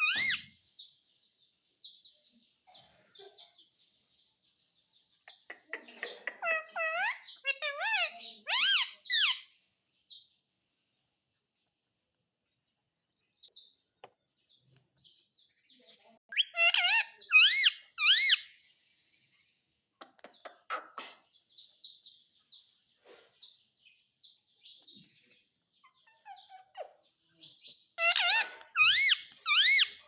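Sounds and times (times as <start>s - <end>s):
parrot screeching calls: 0.0s - 0.5s, 6.4s - 9.4s, 16.3s - 18.5s, 28.0s - 30.0s
parrot chirping softly: 0.0s - 0.6s, 5.0s - 9.7s, 15.8s - 21.8s, 24.4s - 30.0s.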